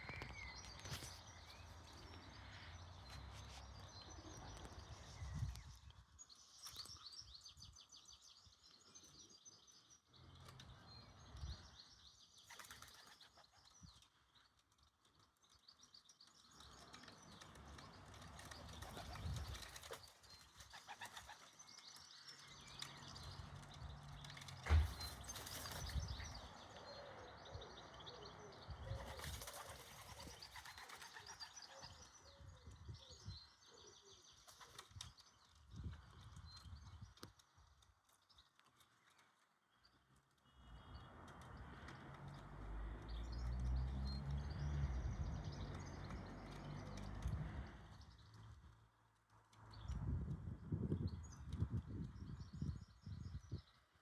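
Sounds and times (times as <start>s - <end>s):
pigeon wing flaps: 17.4s - 21.5s, 24.5s - 26.3s, 29.0s - 31.5s.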